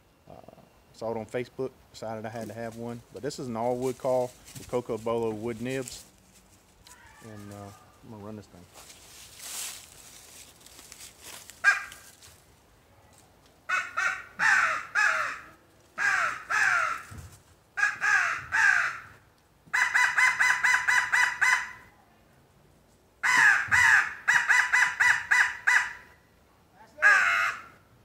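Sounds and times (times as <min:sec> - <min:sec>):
crow call caws: 0:06.8 - 0:08.0, 0:11.6 - 0:12.2, 0:13.7 - 0:21.8, 0:23.2 - 0:26.2, 0:27.0 - 0:27.9.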